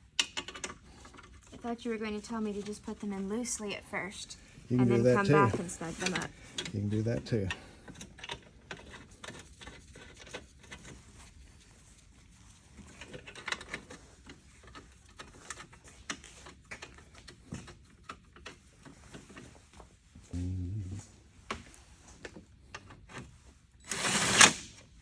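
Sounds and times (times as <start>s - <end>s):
short low hum: 20.4s - 21.2s.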